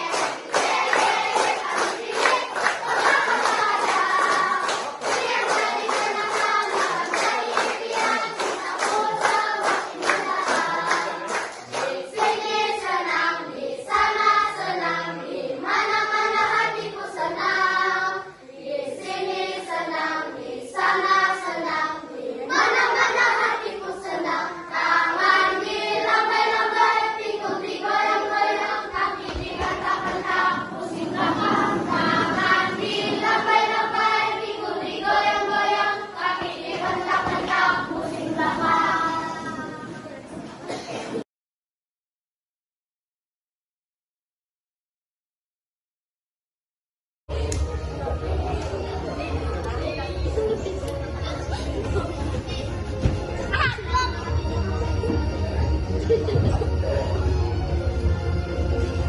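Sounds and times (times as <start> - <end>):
clapped beat: 0.0 - 12.8
children singing together: 0.0 - 41.2.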